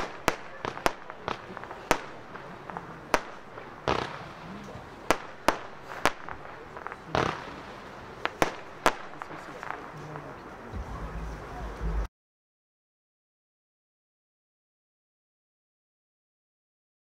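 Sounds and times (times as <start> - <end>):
dull firework bursts: 0.0 - 12.1
fireworks banging: 0.0 - 12.1.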